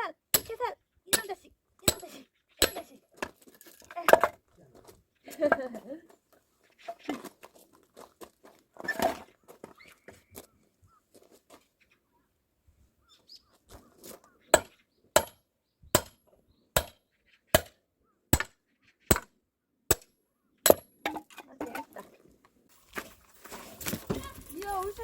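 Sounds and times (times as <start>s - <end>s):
tool striking wood: 14.6s - 15.4s, 16.0s - 16.2s, 16.8s - 17.0s, 18.3s - 18.5s, 19.9s - 21.2s.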